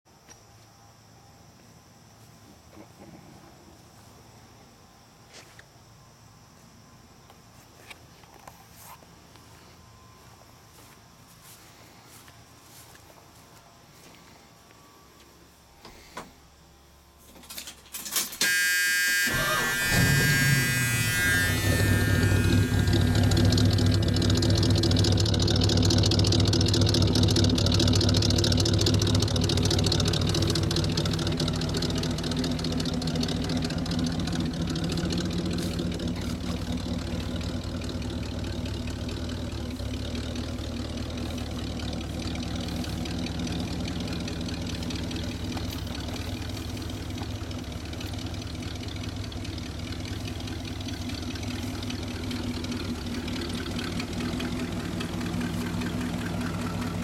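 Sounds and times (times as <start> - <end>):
truck engine idling: 19.2 - 57.0.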